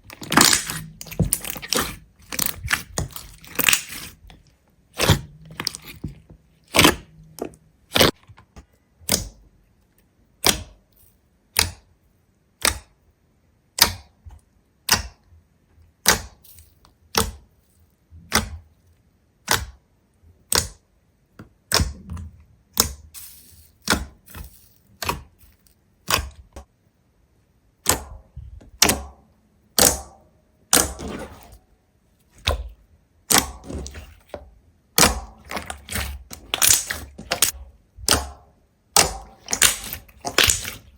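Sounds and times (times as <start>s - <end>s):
crunching: 0.0s - 8.2s, 39.0s - 40.9s.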